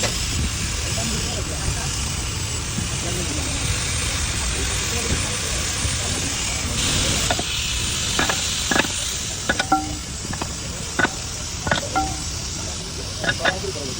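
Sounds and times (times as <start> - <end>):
metal knocks and clinks: 8.2 - 12.4, 13.2 - 13.6.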